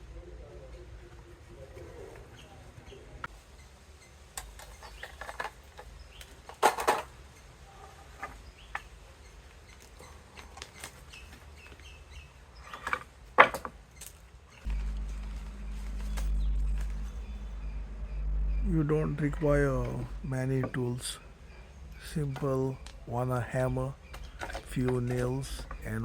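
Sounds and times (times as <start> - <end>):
faint bird chirps: 14.0 - 26.0.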